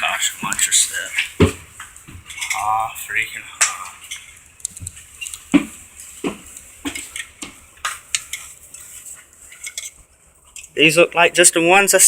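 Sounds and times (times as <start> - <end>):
sharp metallic clinks and knocks: 9.5 - 10.7.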